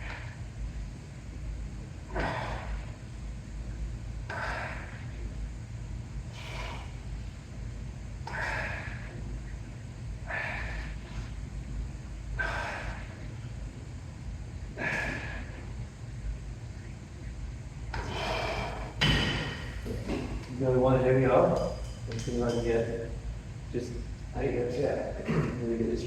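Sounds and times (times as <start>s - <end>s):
steady low rumble: 0.0s - 26.0s
man breathing hard: 2.1s - 3.1s, 4.2s - 5.4s, 6.2s - 7.2s, 8.2s - 9.4s, 10.2s - 11.6s, 12.3s - 13.6s, 14.7s - 15.8s, 17.9s - 19.0s.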